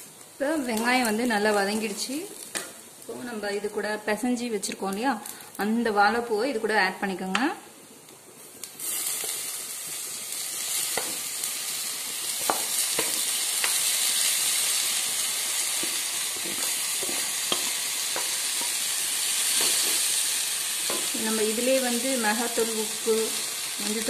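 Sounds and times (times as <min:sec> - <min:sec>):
food sizzling in hot oil: 0:00.0 - 0:07.5, 0:08.4 - 0:24.0
utensils tapping and scraping a pan: 0:10.9 - 0:11.2, 0:12.4 - 0:13.9, 0:15.7 - 0:18.8, 0:19.5 - 0:20.2, 0:20.8 - 0:21.2.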